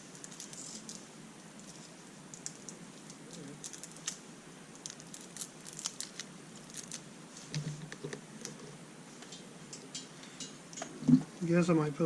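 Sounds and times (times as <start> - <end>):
small irregular clicks: 0.0 - 8.6.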